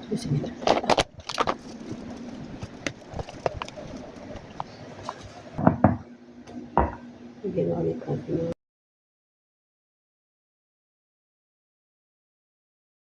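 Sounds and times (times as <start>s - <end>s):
kitchen things clicking and knocking: 0.6s - 6.0s.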